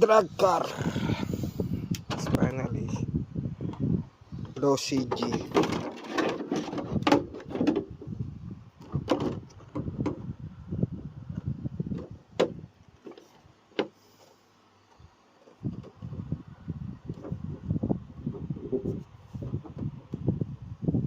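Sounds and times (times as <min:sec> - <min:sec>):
plastic parts clicks and knocks: 0:04.5 - 0:07.9.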